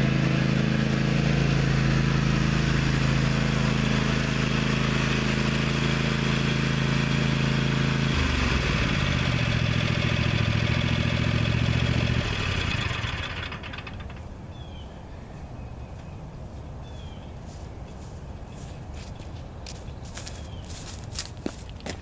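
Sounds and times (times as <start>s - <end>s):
riding mower engine running: 0.0s - 14.7s.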